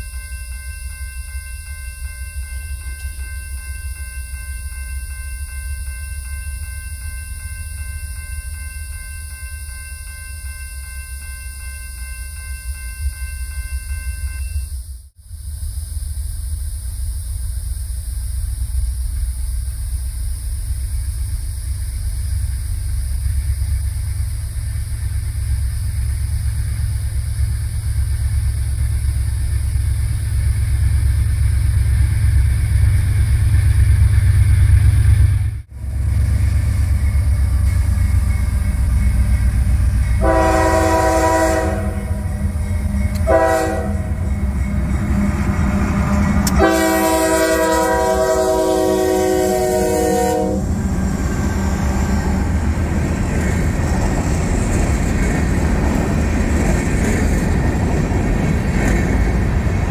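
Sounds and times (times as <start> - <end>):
freight train rumble: 0.0 - 59.9
locomotive chime horn: 35.8 - 50.8.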